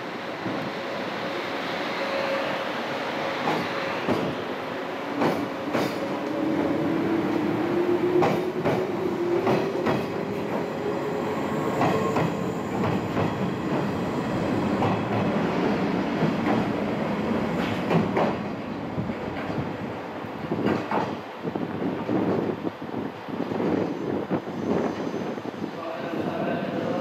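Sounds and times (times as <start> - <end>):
gliding tone from train: 0.7 - 17.9
train wheels clickety-clack: 3.4 - 4.4, 5.1 - 6.4, 8.0 - 10.7, 11.7 - 14.0, 14.8 - 15.4, 16.2 - 16.8, 17.5 - 18.5, 20.6 - 21.2.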